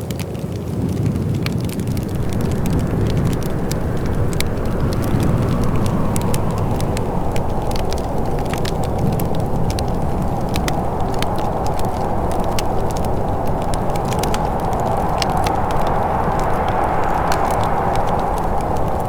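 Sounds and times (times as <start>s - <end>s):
wood fire crackling: 0.0s - 19.0s
low rushing background: 1.6s - 19.0s.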